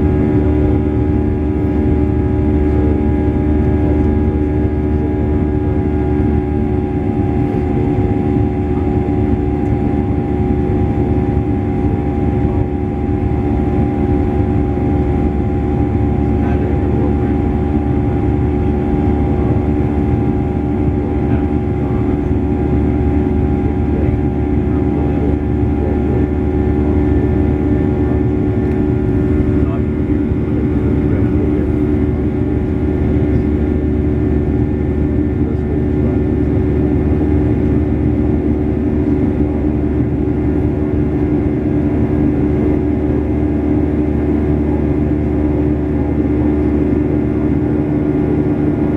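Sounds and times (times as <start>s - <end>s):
steady hums: 0.0s - 44.3s
airplane cabin engine rumble: 0.0s - 48.9s
faint voices: 16.2s - 17.6s, 19.2s - 34.2s.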